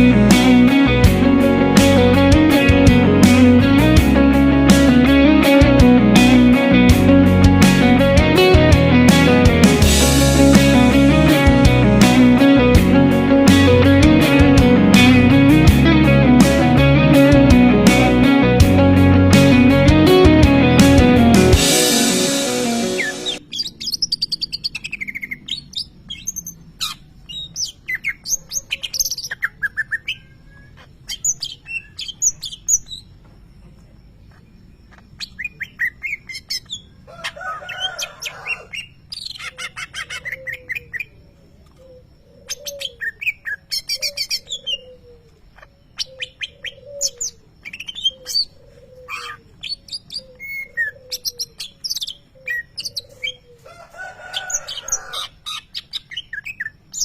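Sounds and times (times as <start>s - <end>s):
bird singing chirps and trills: 23.0s - 37.0s, 37.7s - 53.6s, 54.4s - 57.0s.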